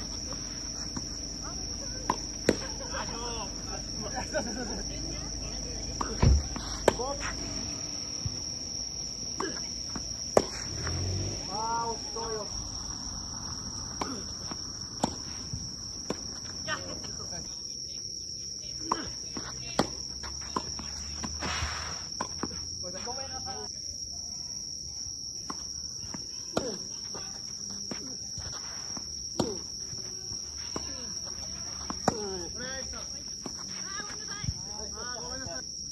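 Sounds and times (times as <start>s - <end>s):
tennis balls struck by rackets: 0.0s - 17.4s, 18.8s - 22.6s, 25.4s - 34.7s
high-pitched insect drone: 0.0s - 18.3s.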